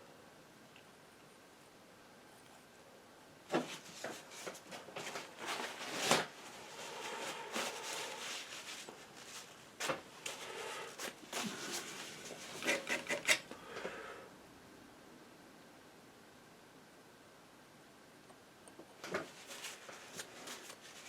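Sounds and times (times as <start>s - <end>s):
painting knife scraping paint: 11.6s - 13.5s.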